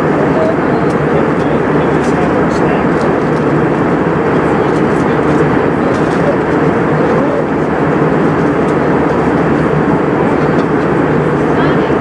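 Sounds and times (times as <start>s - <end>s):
airliner cabin engine noise: 0.0s - 12.0s.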